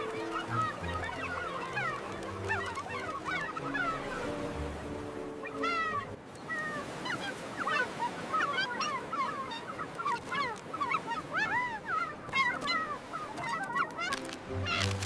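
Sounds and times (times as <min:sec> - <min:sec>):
background music: 0:00.0 - 0:06.2, 0:14.1 - 0:15.0
seagulls calling: 0:00.0 - 0:15.0.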